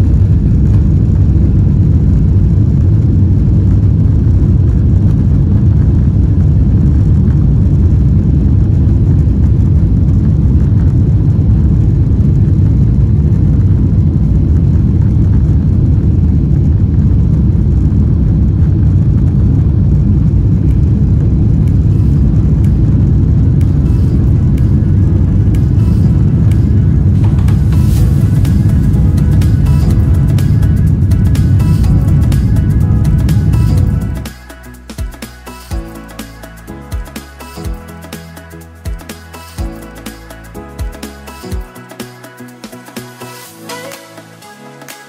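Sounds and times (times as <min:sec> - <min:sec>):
airplane cabin engine rumble: 0:00.0 - 0:35.1.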